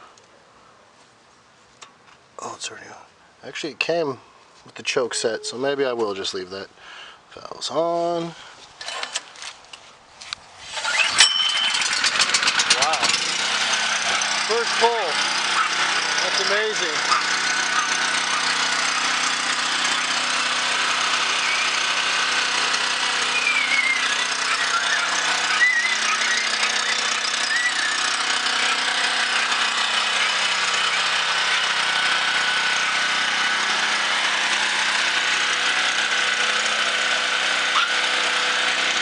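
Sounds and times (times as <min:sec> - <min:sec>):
portable generator running: 0:10.7 - 0:39.0.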